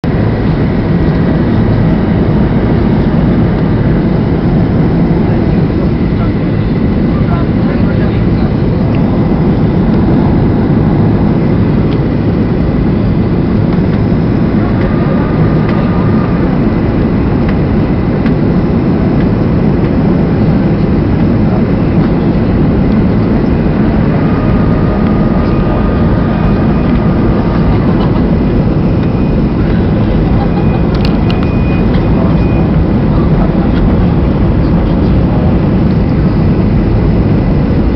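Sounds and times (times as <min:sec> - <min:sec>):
airflow over fuselage: 0:00.0 - 0:37.9
jet engines rumbling: 0:00.0 - 0:37.9.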